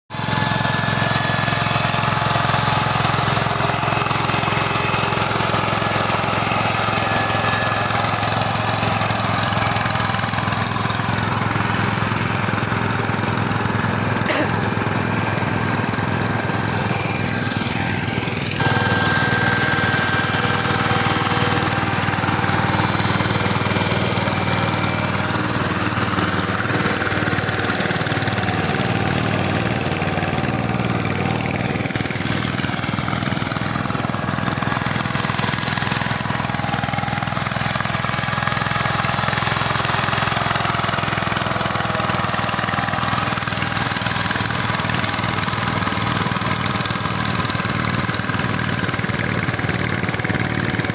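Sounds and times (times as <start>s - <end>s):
tractor engine running: 0.1s - 50.9s.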